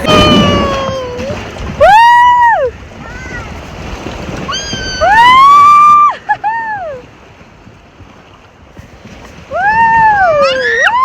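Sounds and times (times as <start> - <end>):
children squealing: 0.0 - 2.4, 4.5 - 6.2
rushing water: 0.0 - 11.0
wind noise: 0.0 - 11.0.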